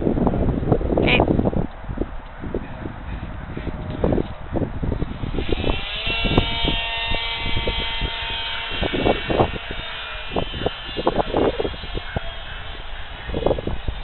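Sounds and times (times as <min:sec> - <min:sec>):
wind buffeting the microphone: 0:00.0 - 0:14.0
electric motor and propeller whine: 0:04.3 - 0:14.0.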